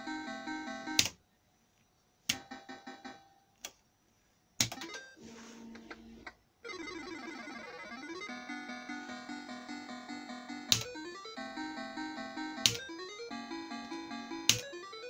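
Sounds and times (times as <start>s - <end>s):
electronic bleeps and beeped tune: 6.7s - 15.0s.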